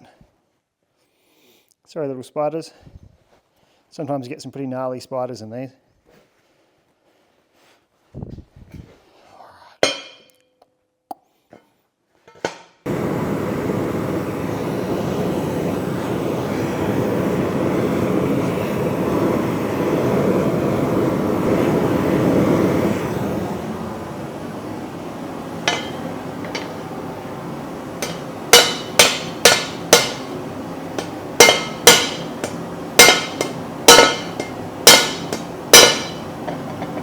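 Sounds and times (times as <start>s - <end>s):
gas forge burner hissing: 12.4s - 37.0s.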